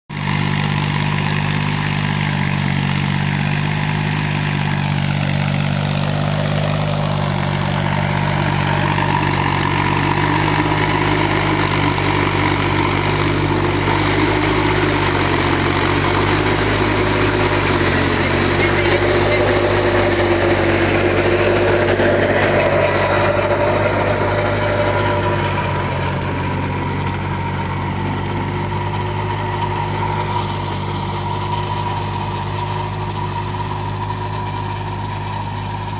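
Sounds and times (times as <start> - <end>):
tractor engine running: 0.1 - 35.9.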